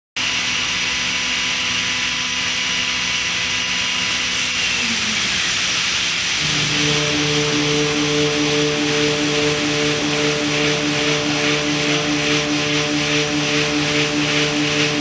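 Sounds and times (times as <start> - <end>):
milling spindle hiss and whine: 4.1 - 15.0
low steady hum: 6.4 - 15.0.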